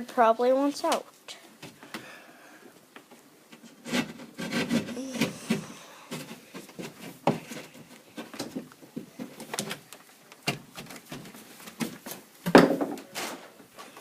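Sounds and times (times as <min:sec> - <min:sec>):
knocks and scrapes on drywall: 0:03.6 - 0:09.8.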